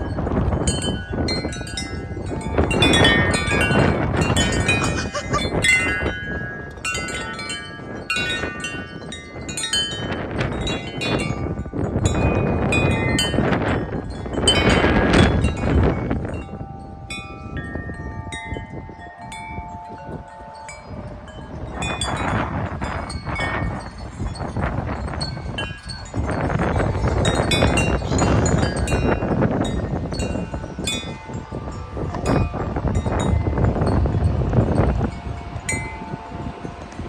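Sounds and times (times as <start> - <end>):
wind buffeting microphone: 0.0 - 37.0
wind chime clanging: 0.1 - 5.9, 23.1 - 34.2.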